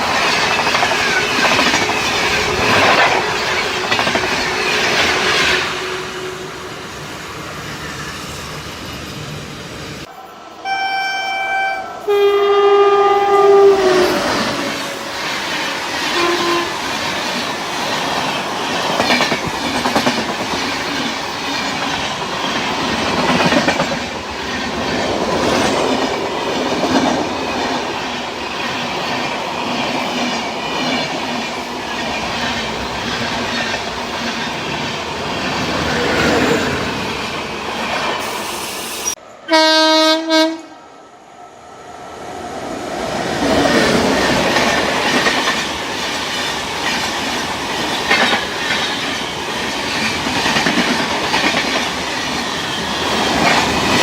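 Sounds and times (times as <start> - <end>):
clickety-clack of train wheels: 0.0 - 6.0, 14.6 - 38.4, 43.2 - 54.0
train horn chord: 5.3 - 6.8, 10.5 - 15.2, 16.1 - 16.8, 39.5 - 40.8.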